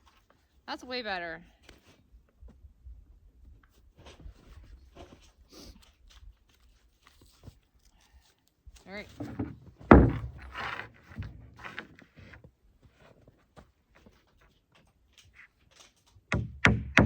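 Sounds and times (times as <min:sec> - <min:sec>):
scraping and rustling: 0:08.9 - 0:16.0
sharp knocks: 0:09.3 - 0:10.6, 0:16.3 - 0:17.0.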